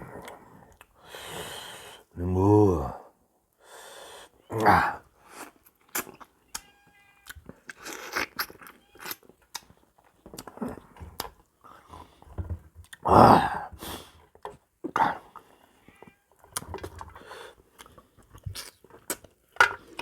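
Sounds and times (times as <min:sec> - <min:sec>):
chewing and crunching food: 0:05.2 - 0:13.1, 0:14.0 - 0:20.0.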